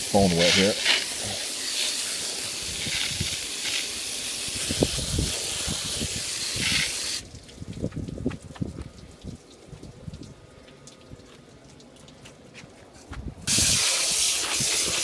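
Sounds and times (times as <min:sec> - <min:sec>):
hose spraying water: 0:00.0 - 0:08.6, 0:13.4 - 0:15.0
water dripping and splashing: 0:06.8 - 0:13.4.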